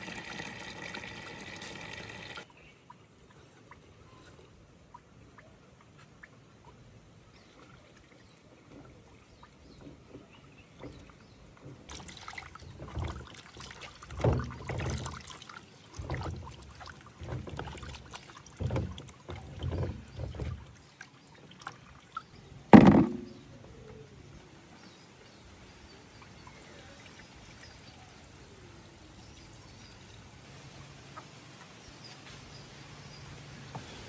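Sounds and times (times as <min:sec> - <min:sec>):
water sloshing in container: 0:00.0 - 0:34.0
sharp knock: 0:22.8 - 0:23.4.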